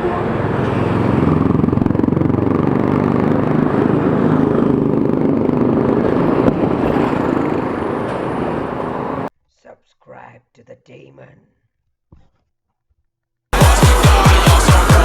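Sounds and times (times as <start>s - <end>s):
motorcycle engine at speed: 0.0s - 9.3s
steady rushing noise: 0.0s - 9.3s.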